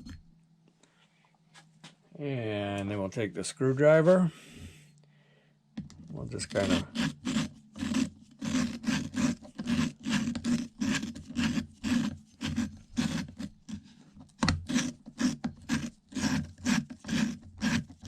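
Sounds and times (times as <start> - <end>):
valve grinding against seat: 6.5 - 13.5.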